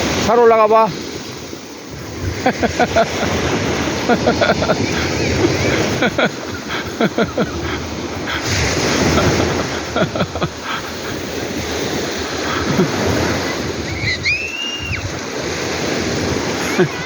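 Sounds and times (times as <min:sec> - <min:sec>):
sea waves washing among rocks: 0:00.0 - 0:17.0
wind buffeting microphone: 0:00.9 - 0:17.0
gurgling water: 0:01.0 - 0:17.0.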